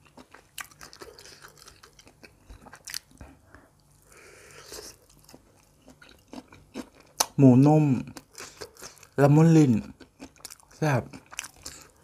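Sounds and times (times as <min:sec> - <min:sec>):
chewing with wet mouth clicks: 0:09.8 - 0:12.0.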